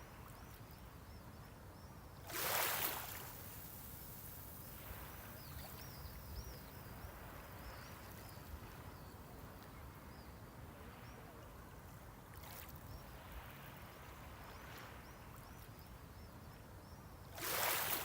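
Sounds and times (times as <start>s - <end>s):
sea waves washing on shore: 2.3s - 5.9s, 17.4s - 18.0s
small birds chirping: 4.0s - 9.4s.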